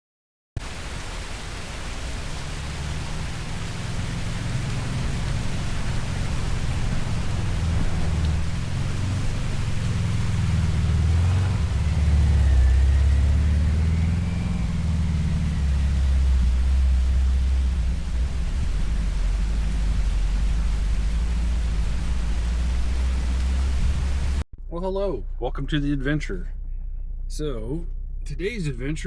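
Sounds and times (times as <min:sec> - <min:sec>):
van engine and road rumble: 0:00.6 - 0:29.0
tyre and wind noise: 0:04.1 - 0:24.4.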